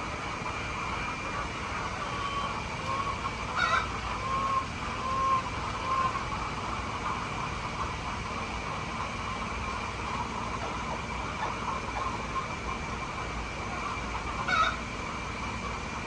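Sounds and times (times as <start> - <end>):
steady background hum: 0.0 - 16.0
chickens clucking: 0.5 - 15.8.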